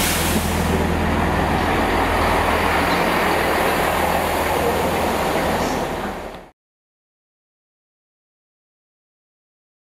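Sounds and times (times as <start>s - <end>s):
train engine drone: 0.0s - 6.5s
wheel and rail noise: 0.0s - 6.5s.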